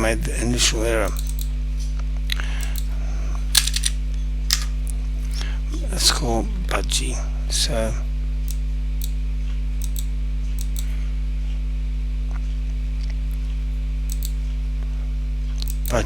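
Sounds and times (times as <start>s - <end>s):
low electrical hum: 0.0s - 16.0s
keyboard and mouse clicks: 9.8s - 10.8s, 14.1s - 14.4s.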